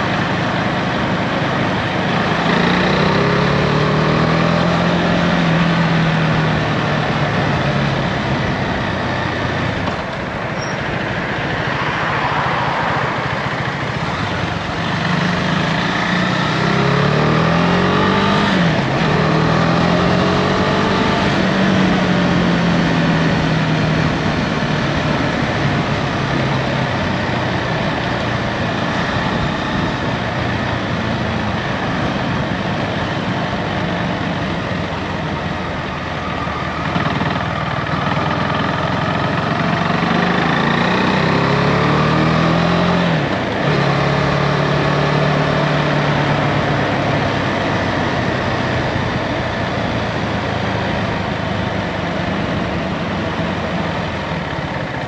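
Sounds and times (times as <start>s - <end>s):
motorcycle engine running: 0.0s - 11.8s, 13.0s - 55.0s.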